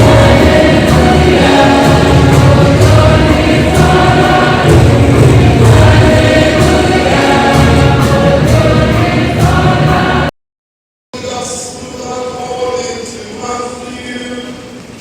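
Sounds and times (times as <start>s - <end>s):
choir singing a hymn: 0.0s - 10.3s
musical accompaniment: 0.0s - 10.3s.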